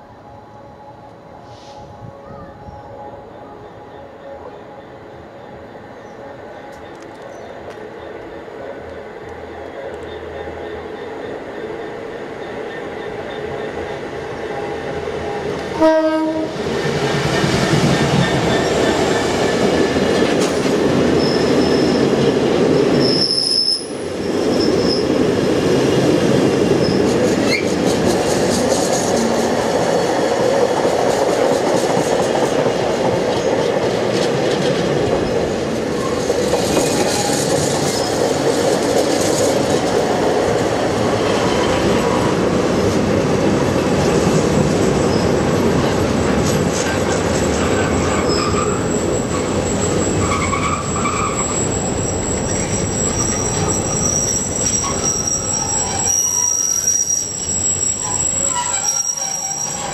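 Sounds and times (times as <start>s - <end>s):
diesel locomotive approaching: 0.0s - 59.9s
wagons rumbling over rails: 4.6s - 59.9s
short train horn blast: 15.8s - 16.6s
high wheel squeal: 21.2s - 22.1s, 23.0s - 25.1s, 47.4s - 59.9s.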